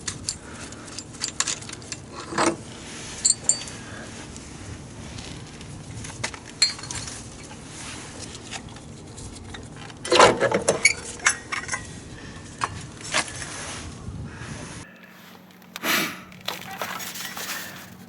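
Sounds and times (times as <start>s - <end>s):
metal tools clinking: 0.0s - 3.8s, 6.5s - 7.3s, 14.9s - 18.0s
low steady hum: 0.0s - 18.0s.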